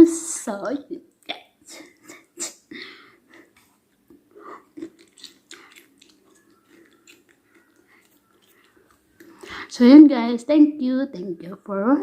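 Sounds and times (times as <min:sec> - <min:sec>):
wet mouth clicks: 0:03.3 - 0:09.4
person chewing: 0:03.3 - 0:09.7.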